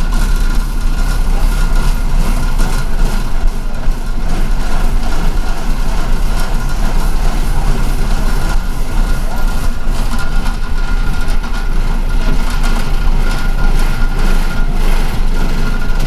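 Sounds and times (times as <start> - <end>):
bus engine rumble: 0.0 - 16.0
road noise: 0.0 - 16.0.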